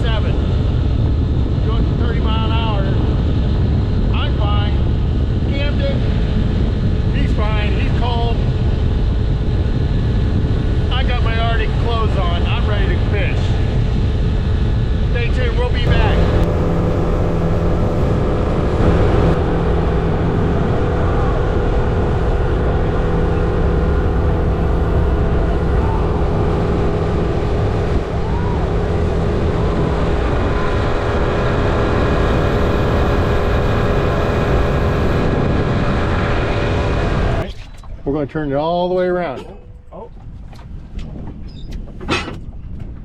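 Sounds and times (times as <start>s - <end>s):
wind and water rushing over hull: 0.0s - 43.0s
outboard motor running: 15.8s - 38.0s.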